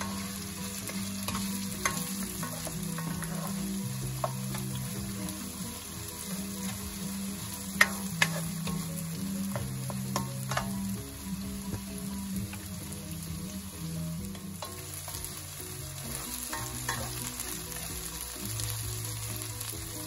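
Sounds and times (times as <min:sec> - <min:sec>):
spatula scraping and tapping pan: 0:00.0 - 0:05.1, 0:07.7 - 0:11.0, 0:16.0 - 0:17.5
onion sizzling in oil: 0:00.0 - 0:20.0.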